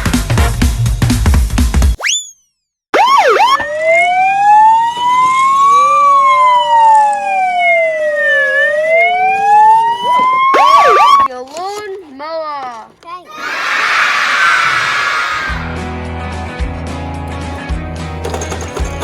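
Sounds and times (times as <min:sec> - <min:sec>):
police siren wailing: 0:03.0 - 0:11.3.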